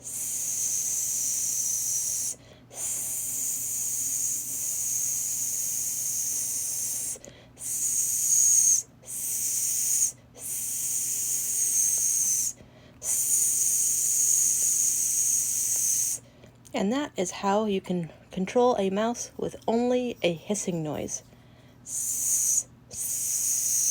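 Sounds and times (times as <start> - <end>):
person hissing into a microphone: 0.0 - 16.2, 21.9 - 23.9.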